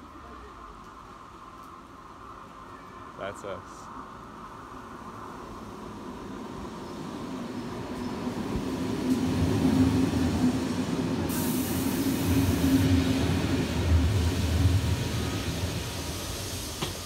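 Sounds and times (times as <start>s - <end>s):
train hum and wheel rumble: 0.0s - 17.0s
steady hiss: 10.1s - 17.0s.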